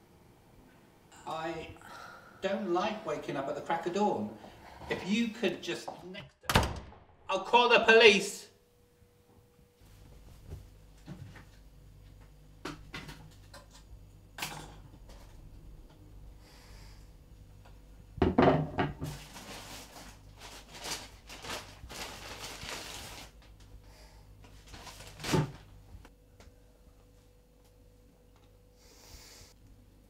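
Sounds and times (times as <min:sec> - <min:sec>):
paper bag crinkling: 0:19.1 - 0:23.6, 0:24.6 - 0:25.7.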